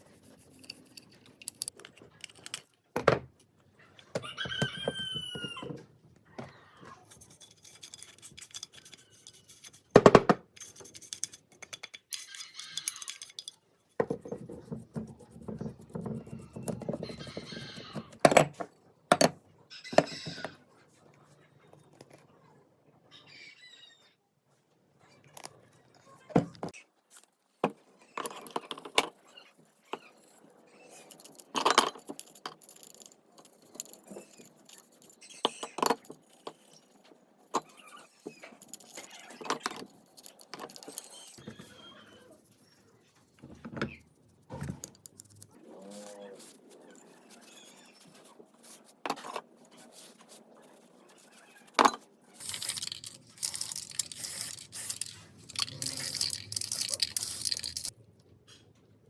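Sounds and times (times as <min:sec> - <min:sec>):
rooster-like bird call: 0:04.2 - 0:05.8
knocks clicks and scrapes: 0:51.8 - 0:57.9.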